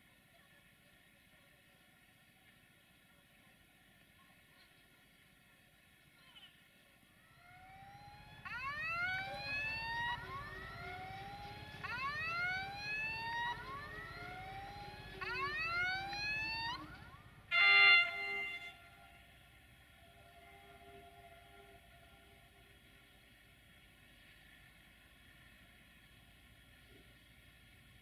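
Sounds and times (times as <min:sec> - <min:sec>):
rising whining tones: 0:07.3 - 0:22.8
steady falling tone: 0:07.4 - 0:17.3
train horn blast: 0:17.5 - 0:19.2, 0:20.3 - 0:22.7.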